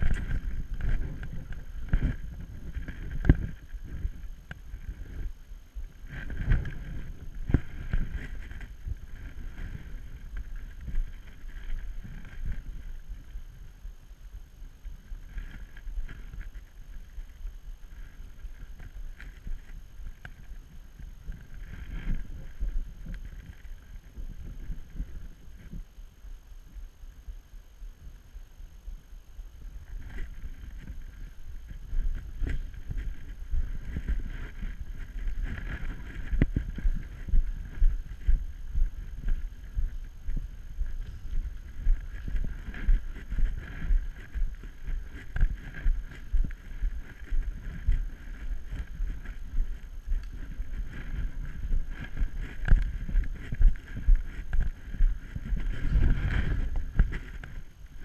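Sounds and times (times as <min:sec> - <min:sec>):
wind rumbling on microphone: 0:00.0 - 0:58.0.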